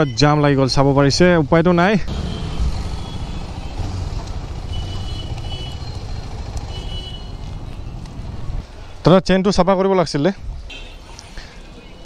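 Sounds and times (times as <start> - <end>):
vehicle engines rumbling: 0.0 - 12.0.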